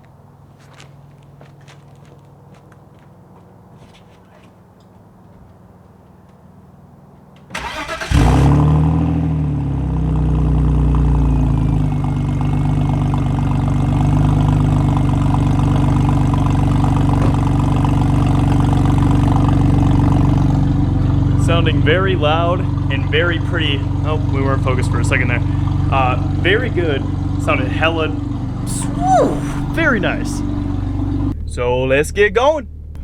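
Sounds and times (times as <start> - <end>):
car engine starting and idling: 7.4 - 33.0.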